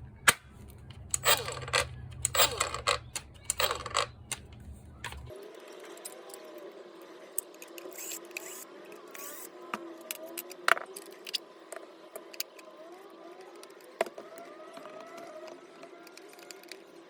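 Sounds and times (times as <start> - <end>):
small hard parts clinking: 0.3 - 5.3.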